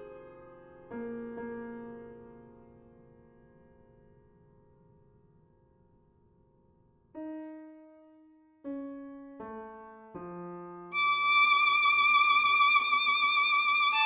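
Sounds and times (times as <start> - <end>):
sustained violin-like note: 11.0 - 14.0.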